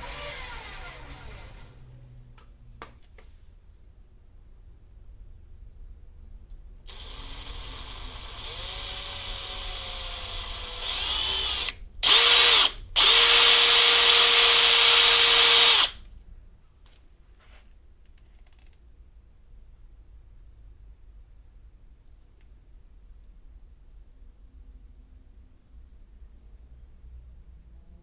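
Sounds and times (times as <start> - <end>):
electric power tool motor whining: 6.9 - 16.0.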